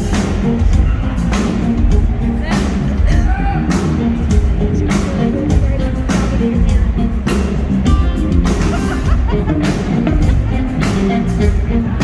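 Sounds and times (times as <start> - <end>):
live rock band playing: 0.0 - 12.0
steady drum beat: 0.0 - 12.0.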